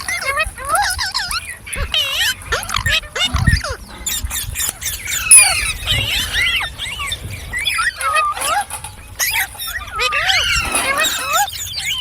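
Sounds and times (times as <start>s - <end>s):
parrot chirping and whistling: 4.8s - 8.6s.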